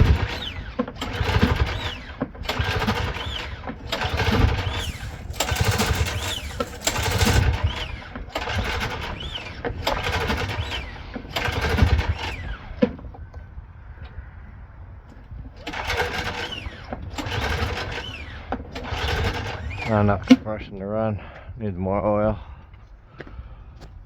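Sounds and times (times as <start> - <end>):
recoil starter pull whir: 0.0 - 12.6, 15.6 - 20.3.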